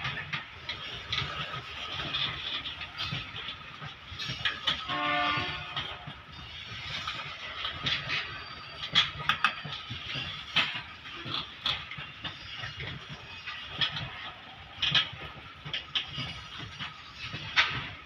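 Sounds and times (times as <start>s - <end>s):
train wagons rumbling: 0.0s - 18.0s
wheels clanking over rail joints: 0.0s - 18.0s.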